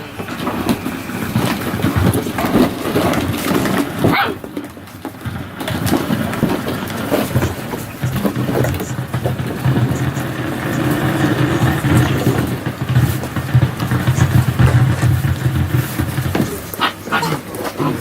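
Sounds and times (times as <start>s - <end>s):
puppies whimpering and yelping: 16.4s - 18.0s.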